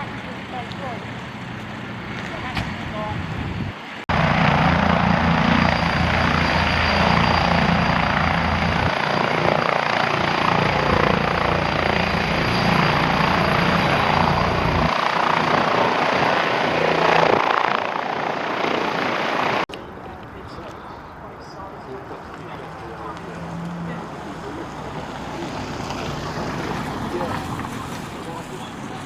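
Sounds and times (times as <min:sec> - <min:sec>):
helicopter rotor and engine noise: 0:00.0 - 0:29.0
thin high whine: 0:04.1 - 0:17.8.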